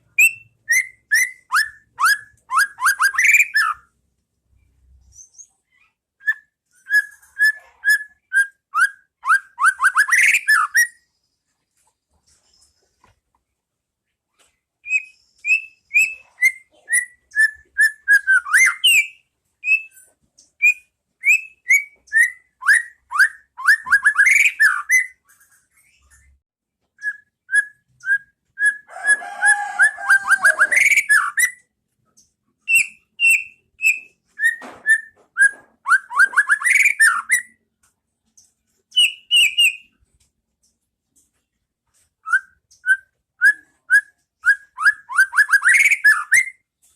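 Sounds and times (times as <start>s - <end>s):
bird singing whistled notes: 0.1s - 3.9s, 14.8s - 20.0s, 20.6s - 25.2s, 27.0s - 28.9s, 32.7s - 37.6s, 38.9s - 39.9s, 42.2s - 46.6s.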